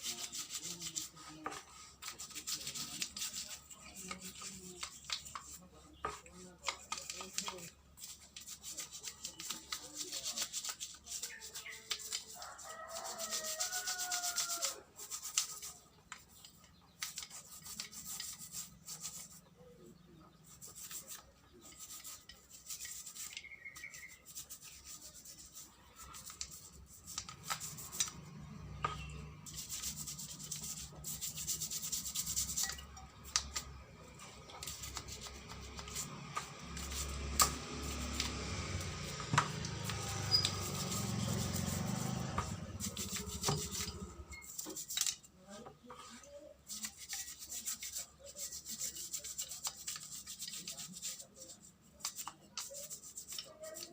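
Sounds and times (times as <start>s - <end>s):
rubbing and scraping with clicks: 0.0s - 53.9s
rooster crowing: 12.3s - 14.8s.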